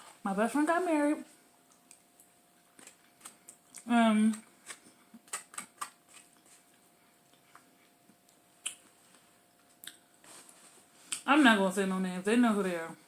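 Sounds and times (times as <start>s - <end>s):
quiet chewing: 1.6s - 11.2s
wet mouth clicks and smacks: 1.7s - 3.9s, 7.3s - 8.9s, 9.6s - 10.0s.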